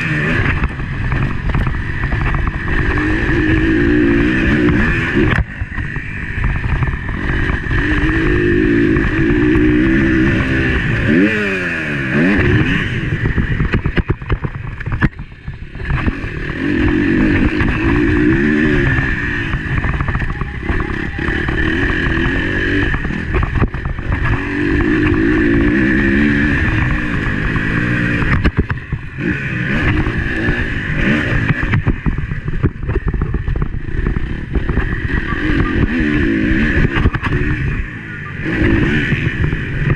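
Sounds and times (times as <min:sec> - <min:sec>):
motocross bike engine revving: 0:00.0 - 0:39.9
knocks and clatter from riding: 0:00.4 - 0:03.7, 0:04.6 - 0:08.0, 0:12.4 - 0:36.0, 0:36.7 - 0:37.7.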